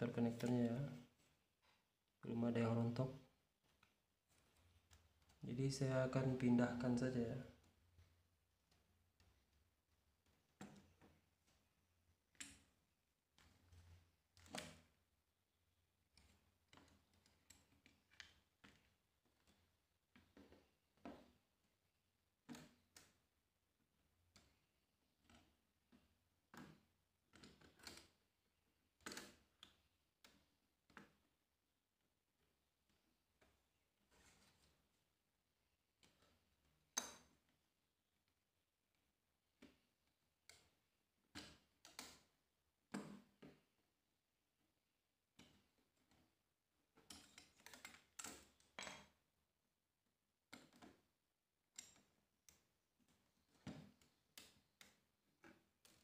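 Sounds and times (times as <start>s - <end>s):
small tools clicking and tapping: 16.1s - 21.4s, 25.2s - 28.2s, 29.0s - 31.2s, 46.9s - 49.2s, 50.5s - 51.1s, 51.7s - 56.0s.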